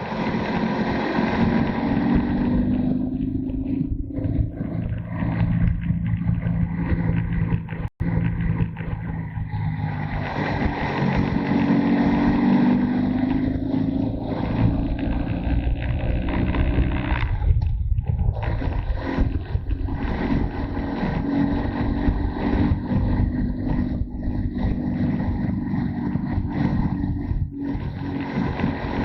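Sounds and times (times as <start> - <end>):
motorcycle engine running: 0.0 - 29.0
wind rush: 9.0 - 29.0.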